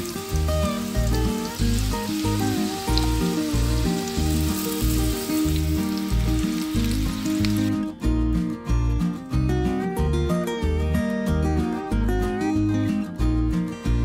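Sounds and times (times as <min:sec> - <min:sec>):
potatoes sizzling in oil: 0:00.0 - 0:07.8
background music with bass line: 0:00.0 - 0:14.0.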